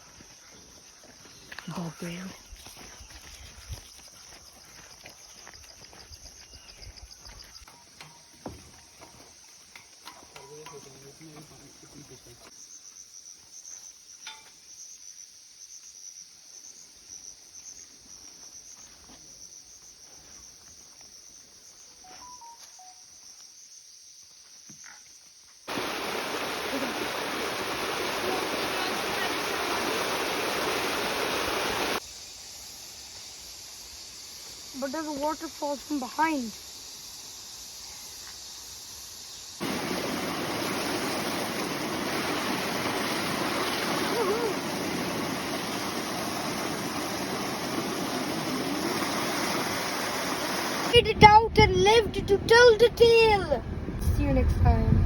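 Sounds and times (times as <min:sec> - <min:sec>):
insects trilling: 0:00.0 - 0:51.0
waterfall rushing: 0:25.7 - 0:32.0, 0:39.6 - 0:51.0.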